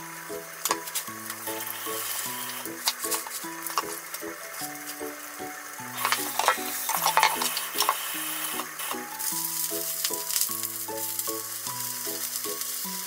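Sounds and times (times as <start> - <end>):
background music: 0.0 - 13.0
eggplant sizzling in oil: 0.0 - 13.0
sharp crackles of oil: 0.3 - 13.0.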